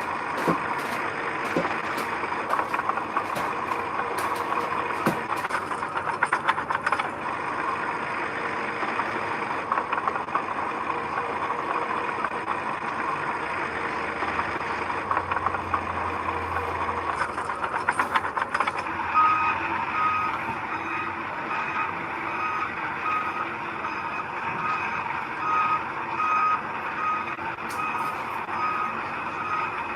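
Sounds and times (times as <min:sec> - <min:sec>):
metal clanking: 0:00.0 - 0:07.2
heavy construction machinery running: 0:00.0 - 0:29.9
reversing alarm beeping: 0:18.9 - 0:29.9.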